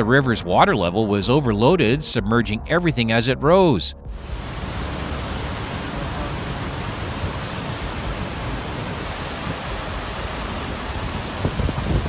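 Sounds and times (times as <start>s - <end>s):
floodwater rushing: 4.1s - 12.0s.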